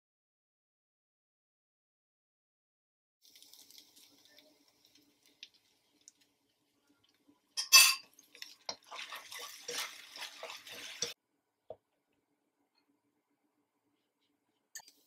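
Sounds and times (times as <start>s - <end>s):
crackly sizzling with stirring clicks: 3.2s - 11.2s, 14.2s - 15.0s
sauce splashing and sizzling: 3.2s - 11.2s.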